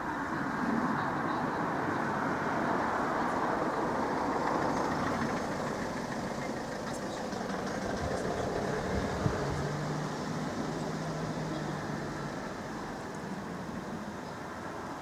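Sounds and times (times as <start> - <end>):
traffic noise: 0.0 - 15.0
vehicle engine idling: 3.4 - 13.4.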